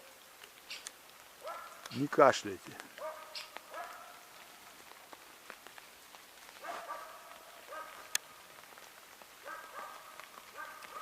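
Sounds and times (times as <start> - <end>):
rain pattering on an umbrella: 0.0 - 11.0
dog barking: 1.4 - 1.9, 3.0 - 4.3, 6.6 - 8.1, 9.4 - 11.0.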